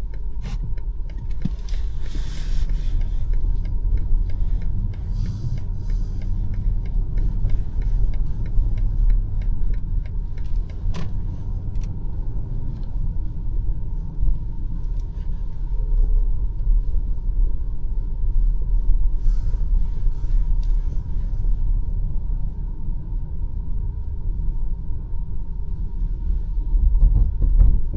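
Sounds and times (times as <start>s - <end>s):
light ticks: 0.0s - 12.0s
car engine and tyre rumble: 0.0s - 27.9s.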